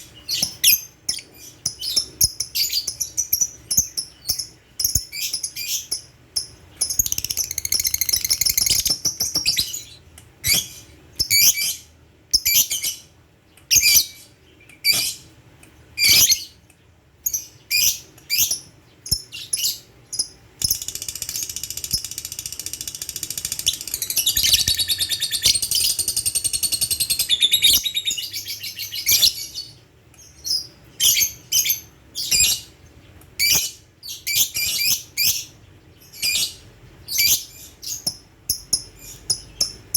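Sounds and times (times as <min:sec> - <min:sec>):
bird chirping: 0:00.0 - 0:15.3, 0:16.0 - 0:39.9
bird chattering trill: 0:00.7 - 0:09.8, 0:17.8 - 0:29.5.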